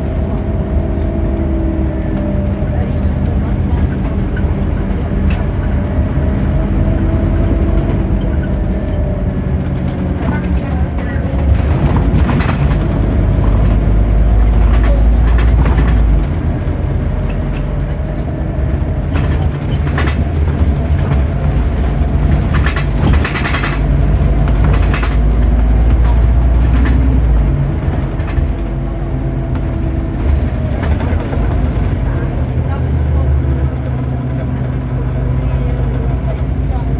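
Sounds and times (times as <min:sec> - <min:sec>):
bus engine drone: 0:00.0 - 0:36.9
rattles and knocks: 0:03.1 - 0:32.5.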